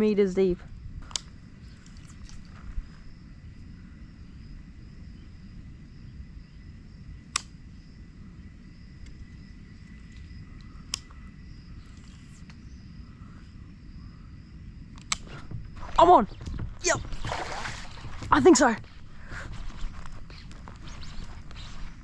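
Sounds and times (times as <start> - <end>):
high wavering insect hum: 0.0 - 22.0
wind and water rumble: 0.0 - 22.0
sharp clicks: 7.3 - 7.5, 14.9 - 15.5.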